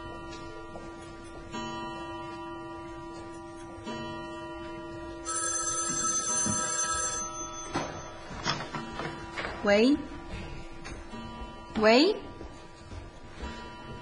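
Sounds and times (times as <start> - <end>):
telephone ringing: 3.9 - 9.4.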